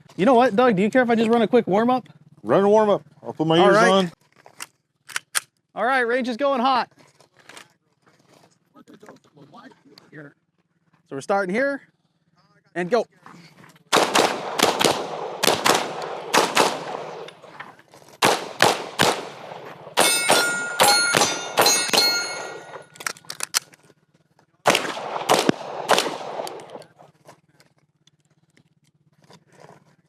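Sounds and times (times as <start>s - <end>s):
pistol gunshots: 13.9s - 17.6s, 18.2s - 23.0s, 24.6s - 27.0s
steel targets ringing: 18.9s - 23.0s.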